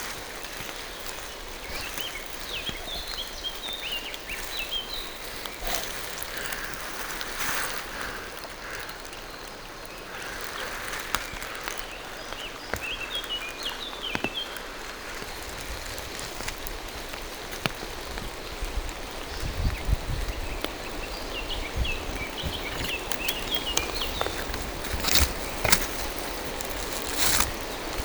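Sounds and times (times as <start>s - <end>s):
steady rain in forest: 0.0s - 28.0s
songbird chirping: 19.1s - 28.0s.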